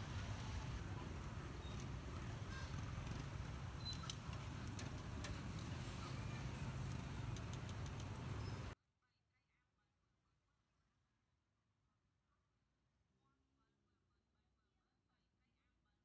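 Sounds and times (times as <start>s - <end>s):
sharp ticks: 6.4s - 8.8s.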